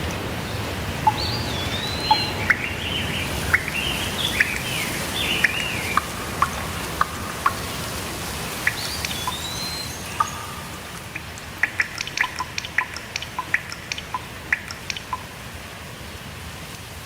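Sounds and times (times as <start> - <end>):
songbirds warbling: 0.0 - 15.3
steady rainfall: 0.0 - 17.0
short ticks: 10.2 - 15.3.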